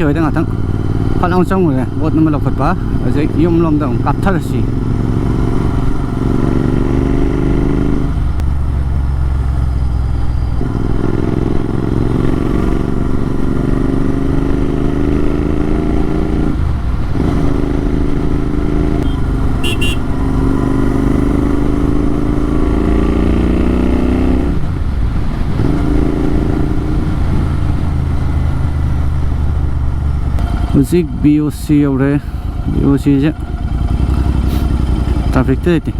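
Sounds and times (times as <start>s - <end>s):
motorcycle exhaust accelerating: 0.0s - 35.7s.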